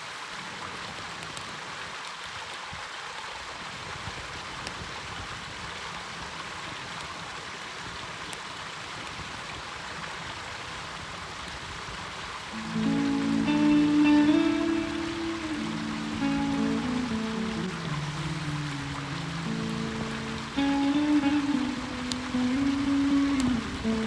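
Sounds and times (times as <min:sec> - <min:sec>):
rushing flowing water: 0:12.3 - 0:24.0.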